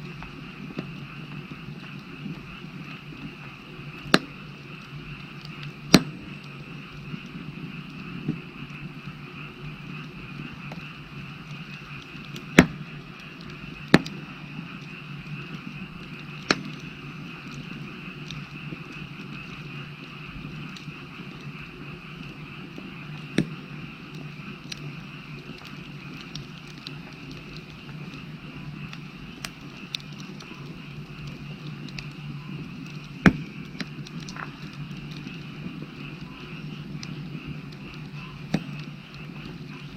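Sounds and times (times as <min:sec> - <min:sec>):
firewood burning: 0:00.0 - 0:39.9
frogs chorus: 0:00.0 - 0:39.9
loud fire pop: 0:05.8 - 0:06.4, 0:12.5 - 0:12.9, 0:33.2 - 0:33.6.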